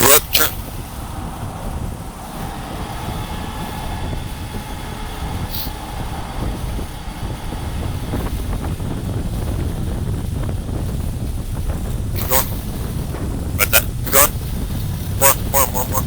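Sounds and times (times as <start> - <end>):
diesel truck rumble: 0.0 - 16.0.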